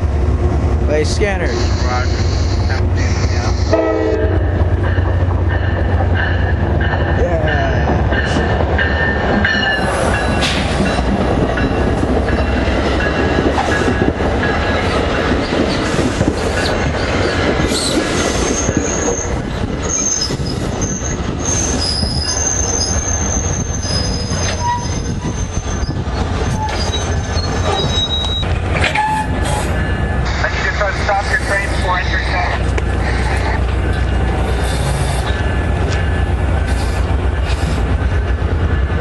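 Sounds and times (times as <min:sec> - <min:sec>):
train rumbling on rails: 0:00.0 - 0:39.0
high-pitched wheel squeals: 0:16.9 - 0:29.7.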